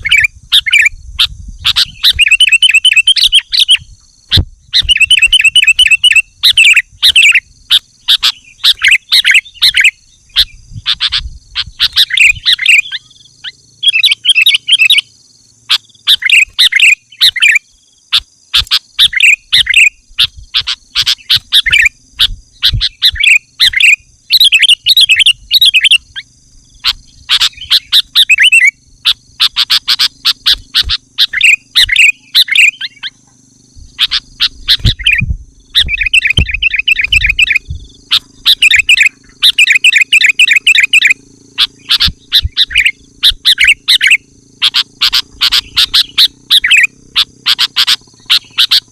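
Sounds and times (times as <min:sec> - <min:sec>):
bird chirping: 0:00.0 - 0:48.9
steady high-pitched hum: 0:00.0 - 0:48.9.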